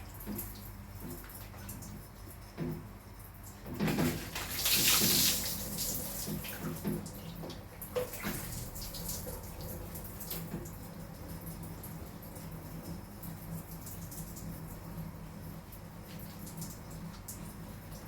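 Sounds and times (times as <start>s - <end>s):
water running and splashing: 3.9s - 10.8s
rushing water spray: 4.1s - 6.5s.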